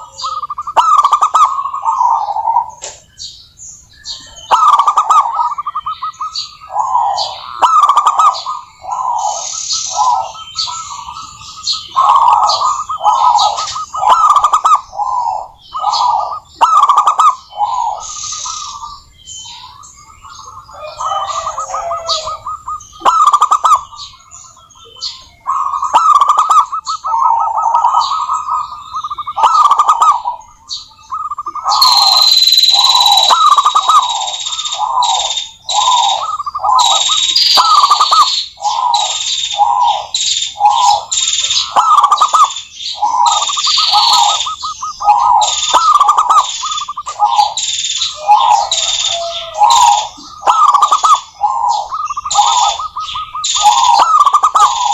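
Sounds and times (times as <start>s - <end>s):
dove cooing: 0.0s - 3.0s, 4.1s - 54.9s
high-pitched steady tone: 31.8s - 34.5s.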